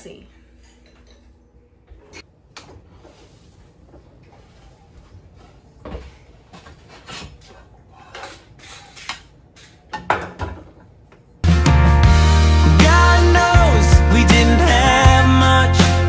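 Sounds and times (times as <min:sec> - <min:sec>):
kitchen items clattering: 0:05.9 - 0:10.9.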